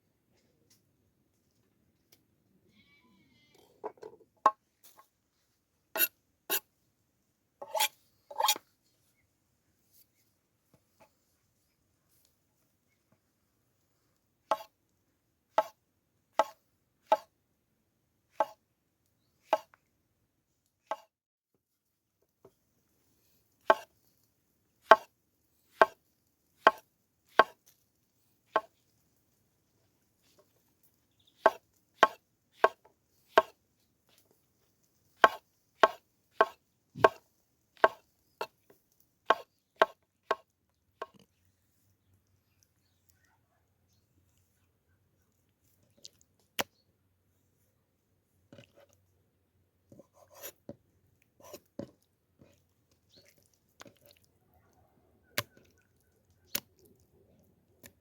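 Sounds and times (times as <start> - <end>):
knife chopping on cutting board: 24.9 - 25.1, 25.8 - 26.0, 26.7 - 27.6, 31.5 - 33.5, 35.2 - 37.2, 37.8 - 38.0, 39.3 - 40.4.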